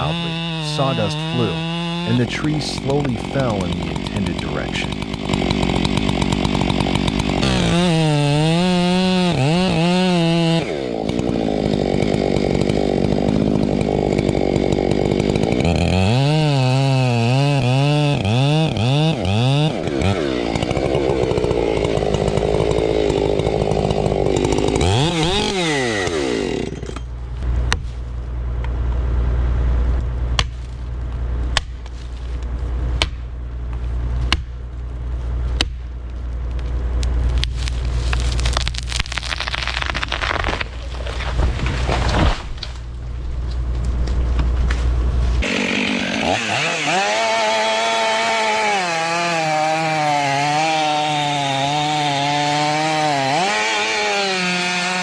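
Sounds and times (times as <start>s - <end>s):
chainsaw cutting wood: 0.0s - 27.2s, 37.2s - 43.0s, 43.6s - 55.0s
sharp cracks: 37.0s - 43.0s.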